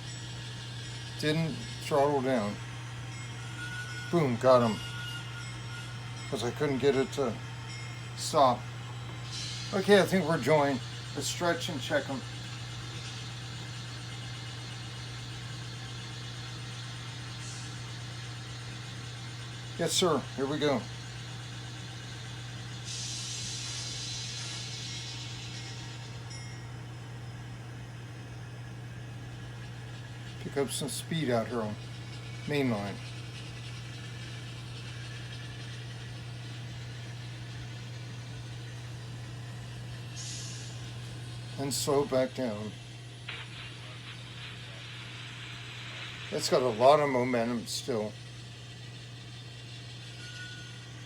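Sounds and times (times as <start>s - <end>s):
model locomotive engine drone: 0.0s - 51.0s
faint hiss: 40.1s - 49.4s.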